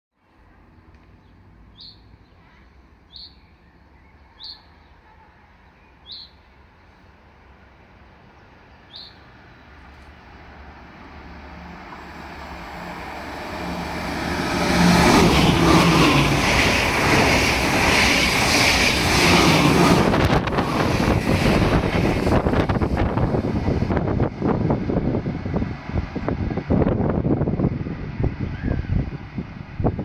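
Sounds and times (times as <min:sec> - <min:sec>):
bird chirping: 0:01.2 - 0:07.0, 0:08.4 - 0:09.8
electric train approaching: 0:06.8 - 0:30.0.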